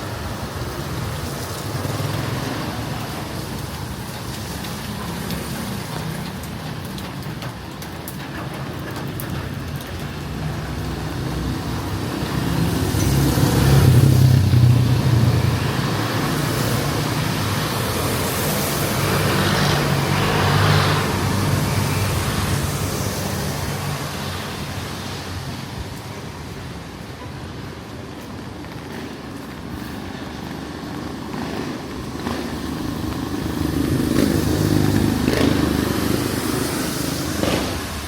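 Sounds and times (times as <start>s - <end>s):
vehicle engines running: 0.0s - 38.0s
vehicle passing close: 11.0s - 25.8s, 29.8s - 38.0s.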